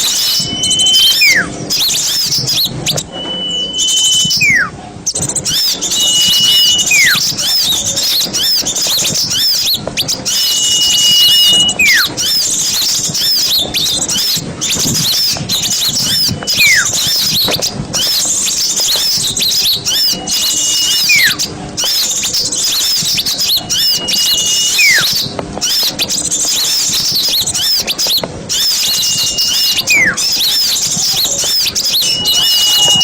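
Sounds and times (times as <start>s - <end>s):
long falling whistle: 0.0s - 2.2s, 2.9s - 4.7s, 5.5s - 7.5s, 10.3s - 12.3s, 15.5s - 17.5s, 19.0s - 21.4s, 23.5s - 25.2s, 28.6s - 30.7s, 31.4s - 33.0s
small songbirds chattering: 0.0s - 33.0s.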